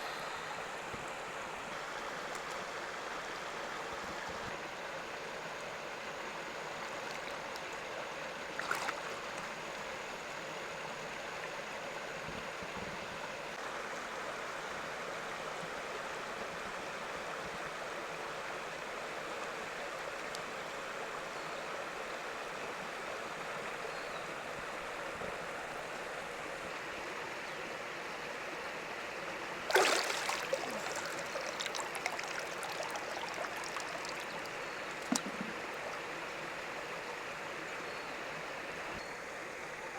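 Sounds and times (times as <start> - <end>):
stream water flowing: 0.0 - 12.6, 21.8 - 39.9
loud knock or splash: 29.7 - 32.9.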